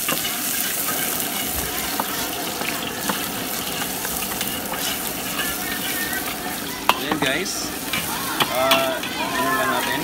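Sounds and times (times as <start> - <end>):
food sizzling in hot oil: 0.0 - 10.0
metal ladle scraping wok: 0.0 - 10.0.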